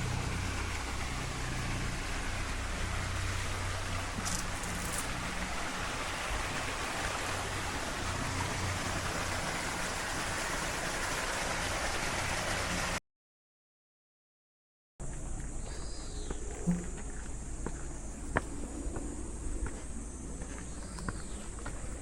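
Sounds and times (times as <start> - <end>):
running water: 0.0 - 13.0.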